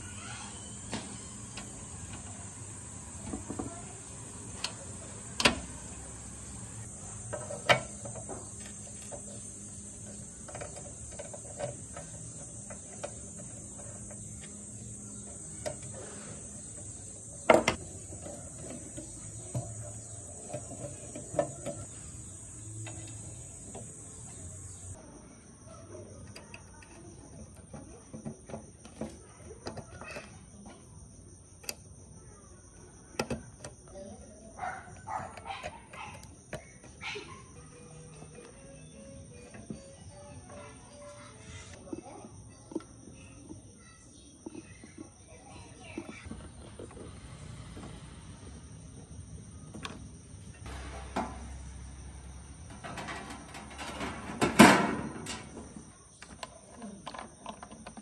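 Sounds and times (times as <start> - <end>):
insects chirping: 0.0 - 58.0.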